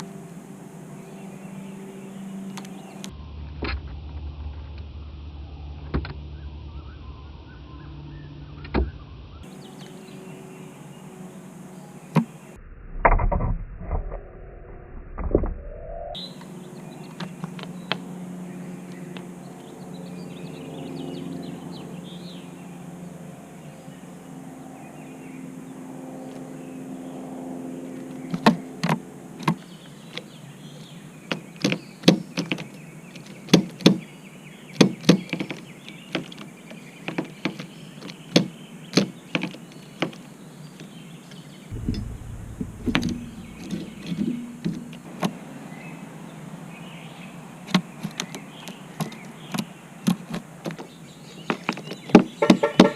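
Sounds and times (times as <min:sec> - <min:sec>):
bird tapping on car: 0:31.3 - 0:34.0, 0:34.7 - 0:40.3, 0:41.7 - 0:45.4, 0:47.7 - 0:52.9
steady hum: 0:41.7 - 0:46.2.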